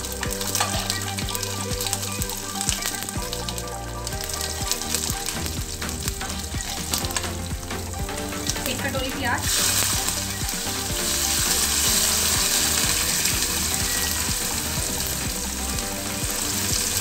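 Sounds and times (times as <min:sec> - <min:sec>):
metal ladle stirring: 0:00.0 - 0:08.8
food sizzling in hot oil: 0:00.0 - 0:17.0.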